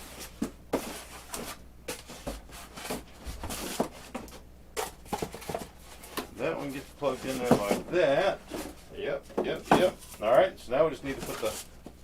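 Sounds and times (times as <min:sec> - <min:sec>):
knocks and rubbing of packing foam: 0:00.0 - 0:04.4, 0:07.0 - 0:08.8.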